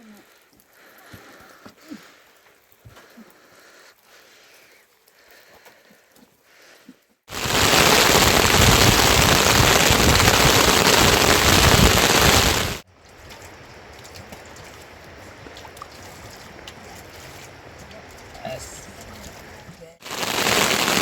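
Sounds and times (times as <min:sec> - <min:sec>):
heavy rain pouring: 0:07.3 - 0:12.8, 0:17.5 - 0:21.0.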